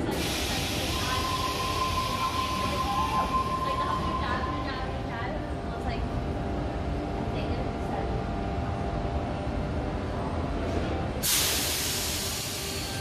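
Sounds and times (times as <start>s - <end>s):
compressed air hiss: 0.0s - 3.4s, 11.2s - 13.0s
train equipment humming: 0.0s - 13.0s.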